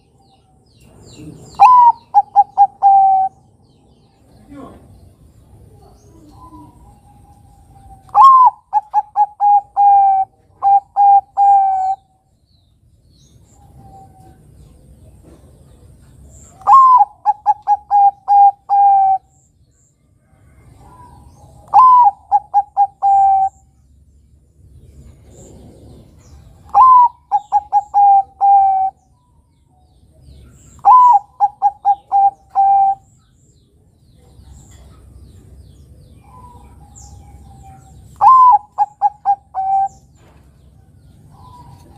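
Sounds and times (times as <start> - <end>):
dove cooing: 1.1 - 3.5, 5.6 - 12.1, 16.5 - 19.4, 20.6 - 23.7, 25.1 - 29.1, 30.5 - 33.1, 36.1 - 40.2.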